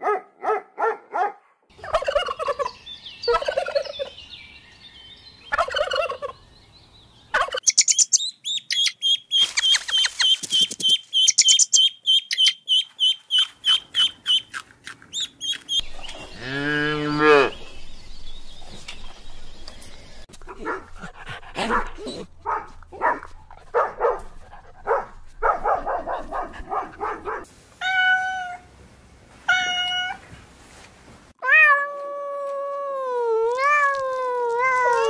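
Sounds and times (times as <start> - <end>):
turkey gobbling: 1.8 - 2.7, 3.3 - 4.0, 5.5 - 6.4, 7.4 - 7.8
rapid high chirps: 7.6 - 14.5
cow mooing: 16.3 - 17.6.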